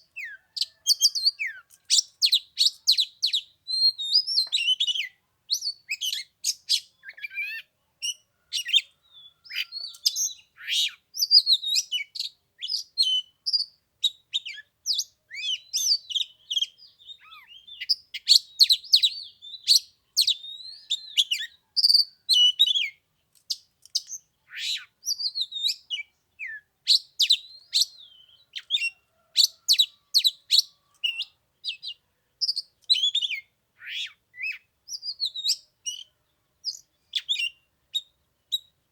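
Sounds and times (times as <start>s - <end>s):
bird singing chirps and whistles: 0.1s - 38.7s.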